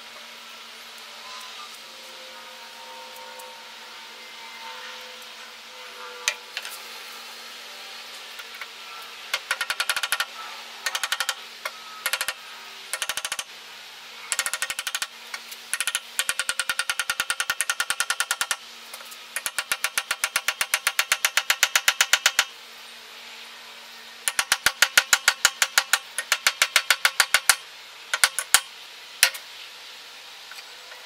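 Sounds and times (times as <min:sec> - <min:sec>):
rapid sharp hammer-like strikes: 0:09.3 - 0:11.4, 0:12.0 - 0:13.5, 0:14.3 - 0:15.1, 0:15.7 - 0:18.6, 0:19.4 - 0:22.5.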